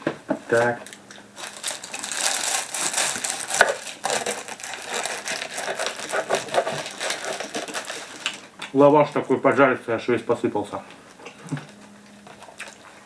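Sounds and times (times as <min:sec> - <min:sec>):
crunching and chewing crisp food: 0:00.6 - 0:09.3, 0:11.0 - 0:13.0.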